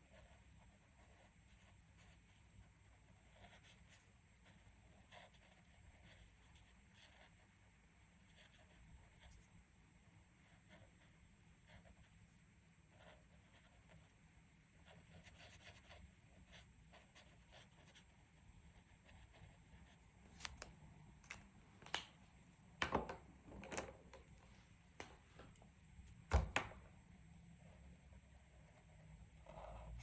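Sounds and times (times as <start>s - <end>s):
pen scratching on paper: 0.0s - 20.6s, 27.6s - 30.0s.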